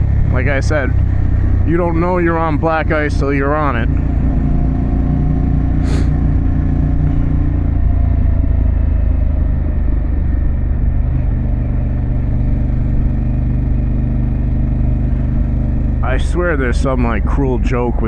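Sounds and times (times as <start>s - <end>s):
motorcycle engine running: 0.0s - 17.7s
brief hiss: 5.8s - 6.2s.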